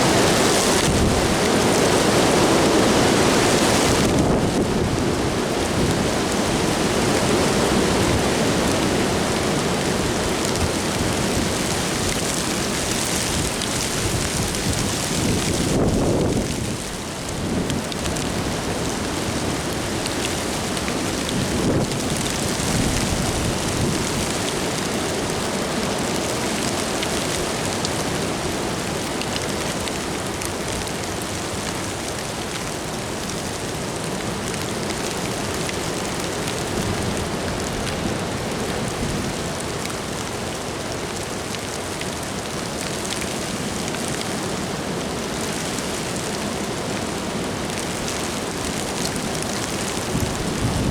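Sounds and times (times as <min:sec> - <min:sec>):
gusting wind: 0:00.0 - 0:27.7, 0:47.4 - 0:50.9
rain falling: 0:00.0 - 0:50.9.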